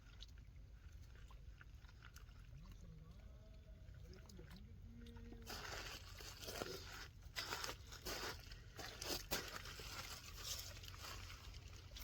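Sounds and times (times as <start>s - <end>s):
rustling and crunching: 5.5s - 12.0s.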